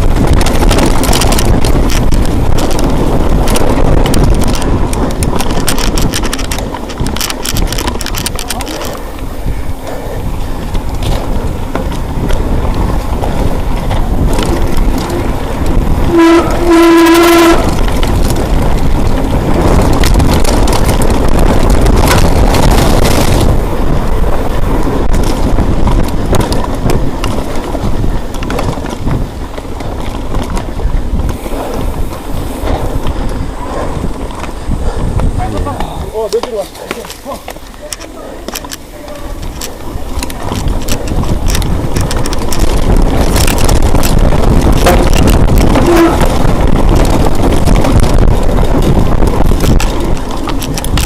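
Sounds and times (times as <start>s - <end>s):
rushing wind and rumble: 0.0s - 51.0s
horn blasts: 16.0s - 17.8s, 45.8s - 46.4s.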